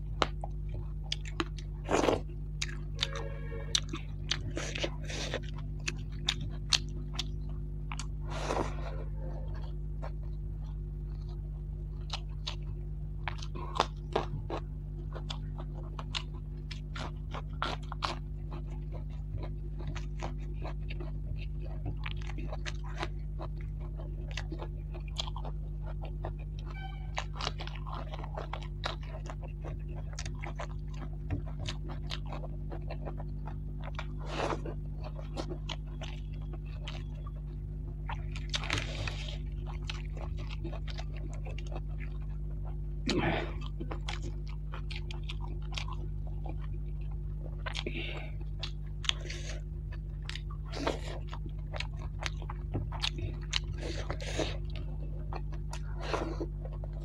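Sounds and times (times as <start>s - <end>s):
chewing and crunching: 0.0s - 57.0s
low hum: 0.0s - 57.0s.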